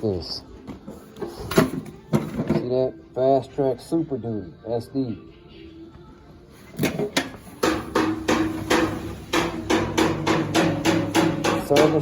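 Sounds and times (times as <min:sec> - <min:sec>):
rapid sharp knocking: 0:07.6 - 0:12.0.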